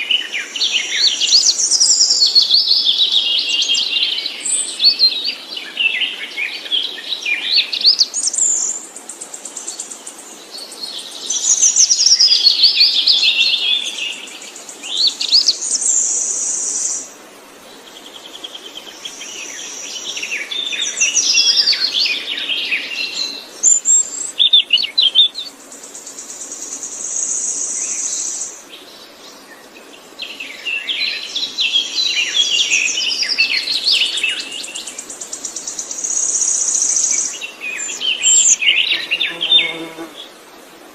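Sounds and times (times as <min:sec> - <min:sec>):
songbird warbling: 0:30.8 - 0:40.2.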